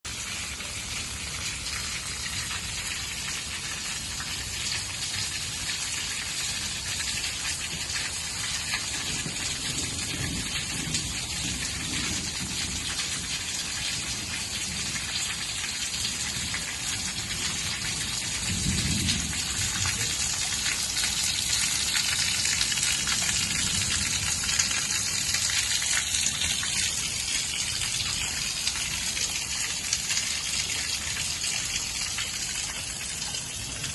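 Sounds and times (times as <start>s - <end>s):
heavy rain hissing: 5.5s - 33.9s
low thunder rumbles: 7.7s - 29.1s.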